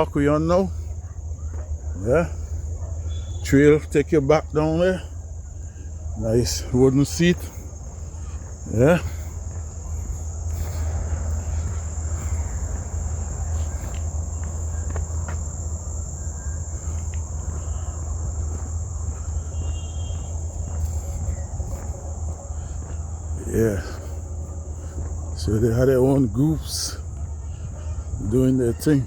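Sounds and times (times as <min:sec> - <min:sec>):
steady low rumble: 0:00.0 - 0:28.8
crickets trilling: 0:00.0 - 0:29.0.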